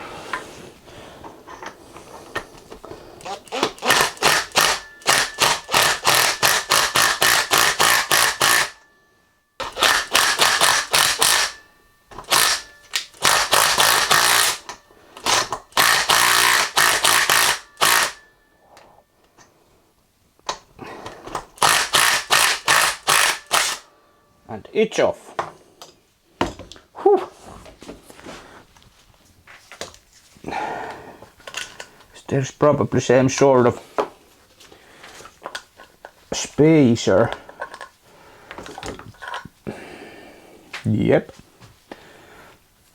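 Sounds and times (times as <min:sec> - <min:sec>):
impact wrench hammering: 0:03.4 - 0:09.0, 0:09.6 - 0:18.3, 0:21.5 - 0:23.8.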